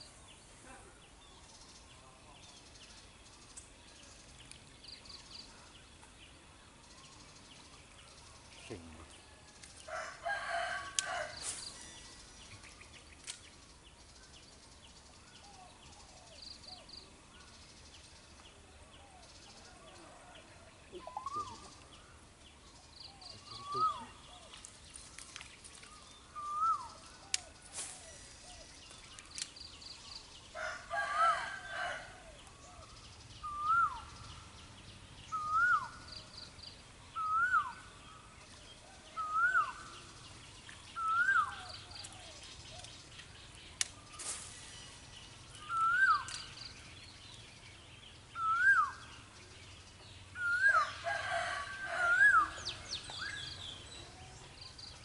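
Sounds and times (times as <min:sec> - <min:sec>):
longer louder bird call: 0:23.0 - 0:24.6, 0:25.8 - 0:28.9, 0:30.0 - 0:34.5, 0:35.3 - 0:40.2, 0:40.9 - 0:42.9, 0:43.8 - 0:46.8, 0:48.3 - 0:49.4, 0:50.3 - 0:54.9.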